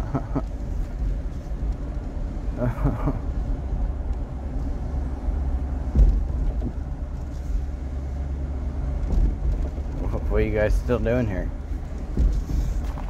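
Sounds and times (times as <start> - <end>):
vehicle engine and road rumble: 0.0 - 13.0
short thump: 5.9 - 6.8, 12.0 - 13.0.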